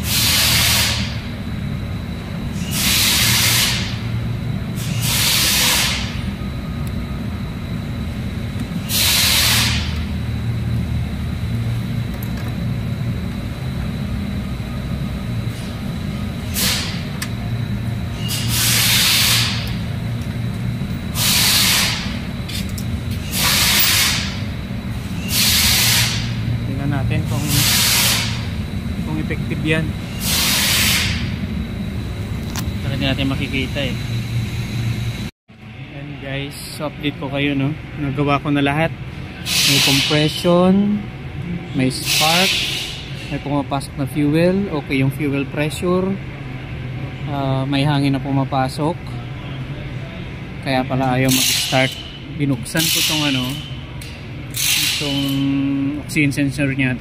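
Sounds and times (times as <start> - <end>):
loud hissing bursts: 0.0 - 1.2, 2.6 - 4.1, 4.8 - 6.2, 8.8 - 10.0, 16.5 - 17.0, 18.1 - 19.7, 21.1 - 22.2, 23.2 - 24.4, 25.1 - 28.5, 29.2 - 31.4, 39.4 - 40.4, 42.0 - 43.1.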